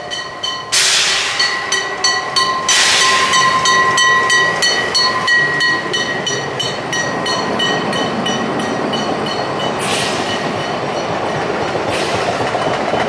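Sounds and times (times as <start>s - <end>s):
train wheels clicking: 0.0s - 13.0s
train hiss bursts: 0.6s - 5.6s, 9.5s - 12.9s.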